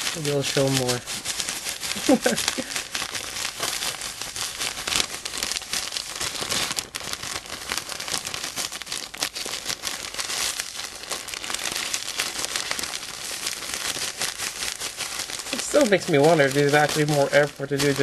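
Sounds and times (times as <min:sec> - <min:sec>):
plastic bag crinkling: 0:00.0 - 0:18.0
salt grains hissing: 0:00.0 - 0:18.0.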